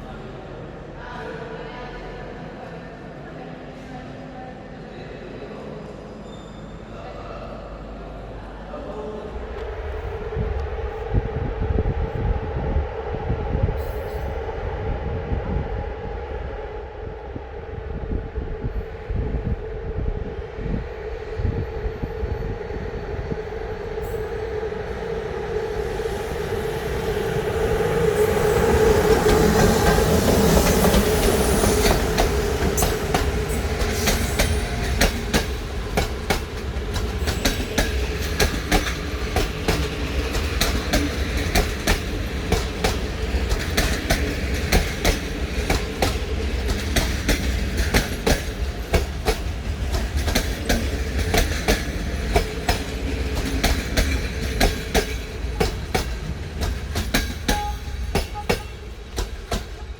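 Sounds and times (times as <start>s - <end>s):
electric locomotive hum: 7.6s - 59.9s
train wheels clicking on rail joints: 29.0s - 59.9s.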